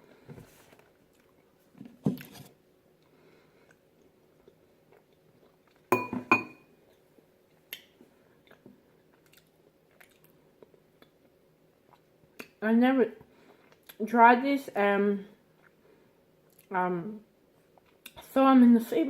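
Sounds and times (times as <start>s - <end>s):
utensil clinking on bowl: 5.9s - 6.6s
mouth and chewing sounds: 7.6s - 12.6s, 15.5s - 15.8s.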